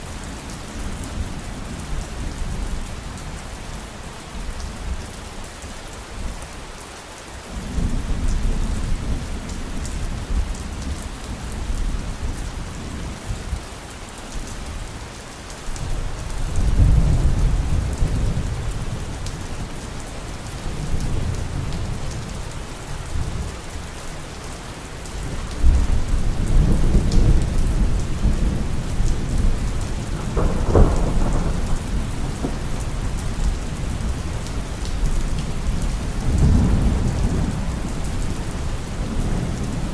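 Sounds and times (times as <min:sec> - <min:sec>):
heavy rain: 0:00.0 - 0:39.9
rolling thunder: 0:25.6 - 0:39.9.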